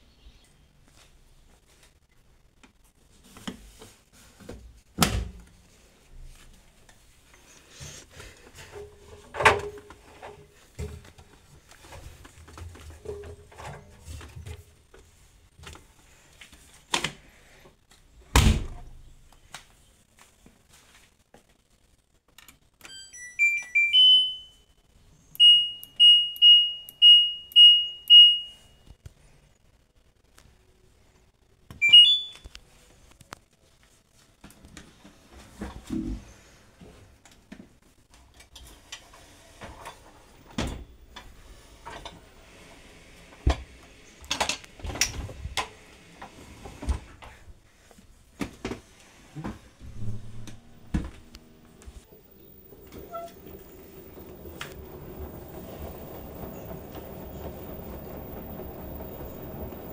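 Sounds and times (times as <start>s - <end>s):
control panel beeps: 22.9s - 24.5s, 25.4s - 28.6s, 31.8s - 32.5s.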